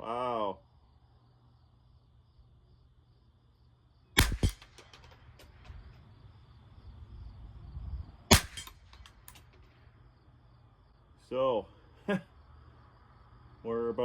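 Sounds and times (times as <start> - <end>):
sharp cracks: 4.2 - 6.1, 8.3 - 10.0
light clicks: 8.6 - 9.7.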